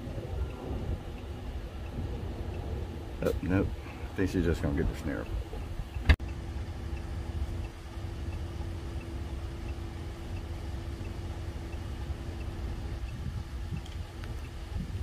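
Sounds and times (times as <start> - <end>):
faint high ticking: 0.0 - 15.0
vehicle engine idling: 0.0 - 15.0.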